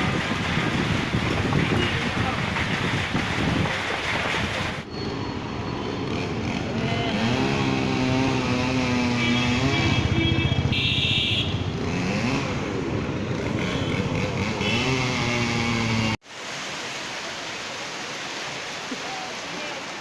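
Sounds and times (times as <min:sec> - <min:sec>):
rain and wet tyres hissing: 0:00.0 - 0:04.9, 0:16.2 - 0:20.0.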